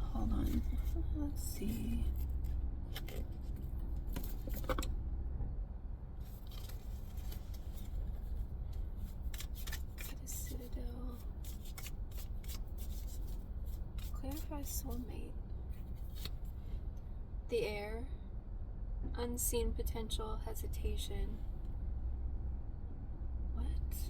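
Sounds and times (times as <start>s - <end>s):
cards being shuffled: 6.3s - 8.4s, 9.0s - 15.1s, 15.9s - 16.5s.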